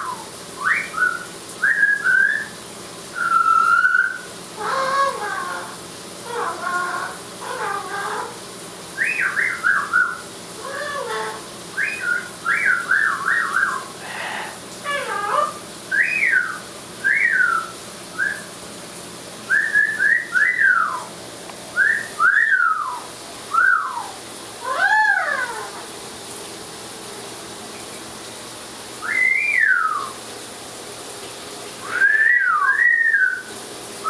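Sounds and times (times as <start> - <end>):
parrot whistling: 0.0 - 8.4, 9.0 - 18.5, 19.5 - 21.1, 21.8 - 25.8, 29.0 - 30.2, 31.8 - 33.5
shower water running: 0.0 - 34.0.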